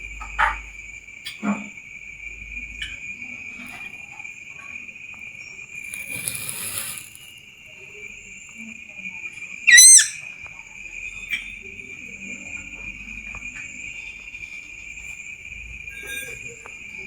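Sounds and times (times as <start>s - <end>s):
high insect-like trill: 2.2s - 8.5s, 10.8s - 17.0s
brief hiss: 5.8s - 7.3s.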